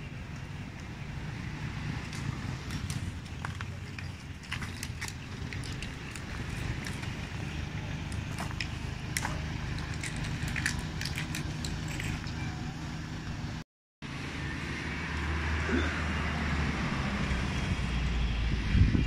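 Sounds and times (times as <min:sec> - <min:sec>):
vehicle engine running: 0:00.0 - 0:13.6
wind on microphone: 0:17.5 - 0:19.0.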